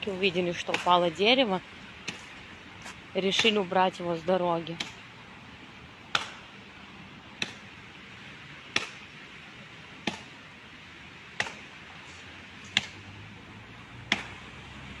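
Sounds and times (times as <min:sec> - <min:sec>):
steady outdoor hiss: 0:00.0 - 0:15.0
axe chopping into tree: 0:00.6 - 0:01.0, 0:04.8 - 0:05.0, 0:06.1 - 0:06.5, 0:07.4 - 0:07.7, 0:08.7 - 0:09.1, 0:10.0 - 0:10.3, 0:11.4 - 0:11.7, 0:12.7 - 0:13.1, 0:14.0 - 0:14.4.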